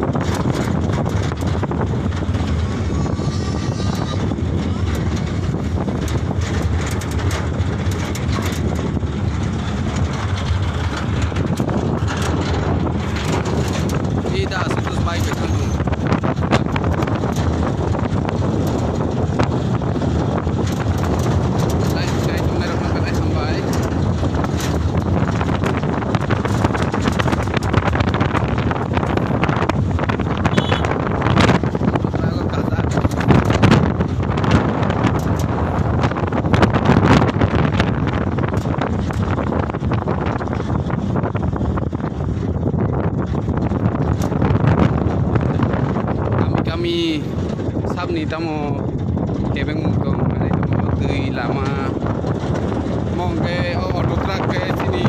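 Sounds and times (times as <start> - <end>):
truck road and engine rumble: 0.0 - 55.0
wind buffeting microphone: 0.0 - 55.0
light rattling clicks: 0.1 - 2.9, 3.9 - 55.0.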